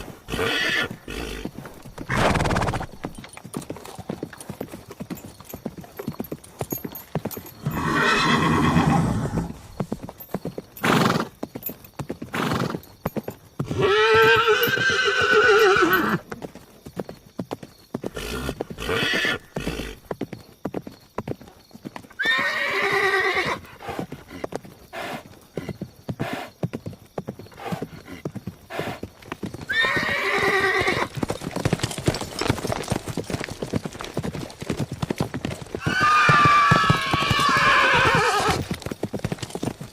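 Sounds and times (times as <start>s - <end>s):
horse whinnying: 0.0s - 3.2s, 7.6s - 9.8s, 10.8s - 11.3s, 13.6s - 16.3s, 18.0s - 20.0s, 22.2s - 24.0s, 29.6s - 31.2s, 35.8s - 38.8s
hooves clip-clopping: 0.0s - 39.9s.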